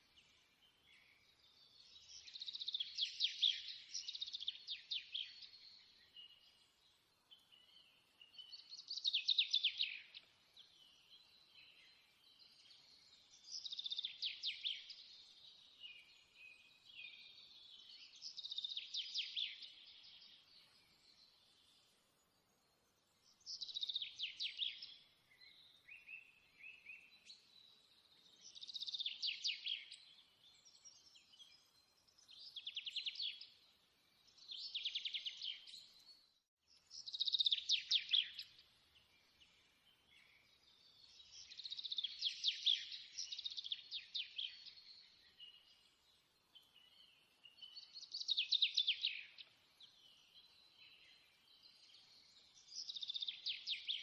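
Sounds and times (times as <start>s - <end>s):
bird chirps: 0.0s - 54.0s.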